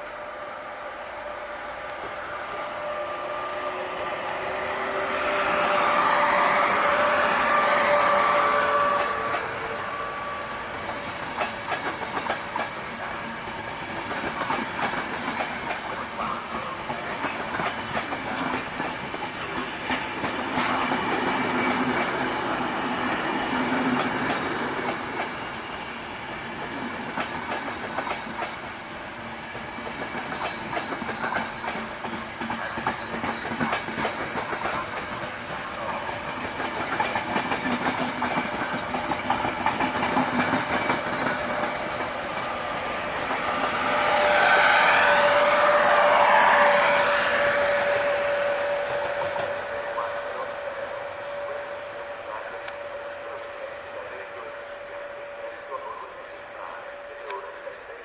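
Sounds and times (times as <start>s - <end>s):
train wheels clattering: 10.8s - 50.5s.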